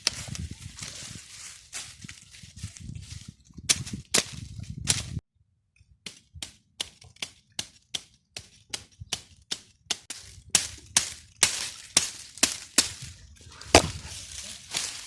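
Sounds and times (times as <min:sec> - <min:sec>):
wood breaking: 0:10.6 - 0:15.0
chopping strikes on wood: 0:13.6 - 0:15.0.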